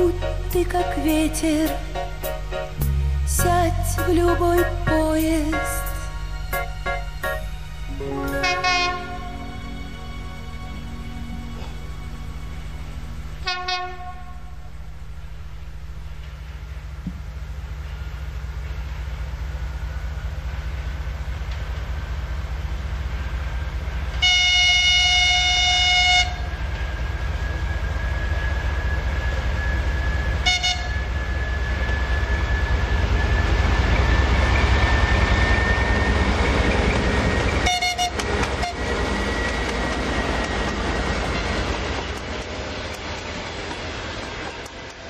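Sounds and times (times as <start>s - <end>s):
low rumble of passing train: 0.0s - 45.0s
locomotive horn: 7.9s - 15.1s, 24.2s - 26.6s, 30.4s - 31.0s, 37.2s - 39.4s.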